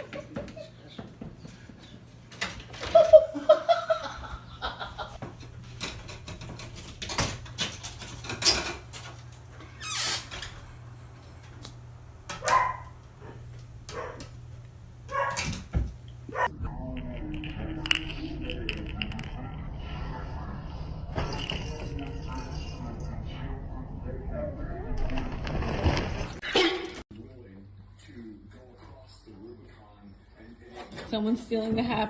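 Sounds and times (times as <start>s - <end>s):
dog yipping and barking: 12.4s - 13.0s, 13.9s - 14.2s, 15.1s - 15.5s, 16.3s - 16.5s.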